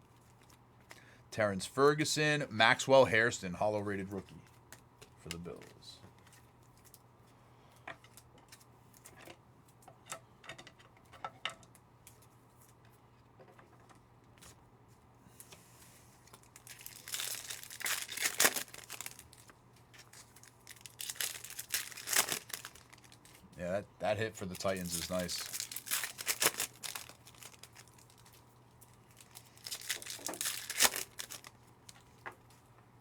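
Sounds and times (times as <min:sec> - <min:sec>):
wrapper torn and crinkled: 0:16.4 - 0:23.5, 0:24.4 - 0:32.0.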